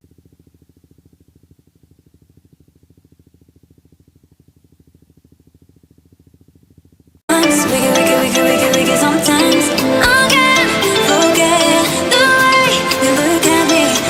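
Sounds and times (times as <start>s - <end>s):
engine running with fast pulse: 0.0s - 14.0s
loud pop music: 7.3s - 14.0s.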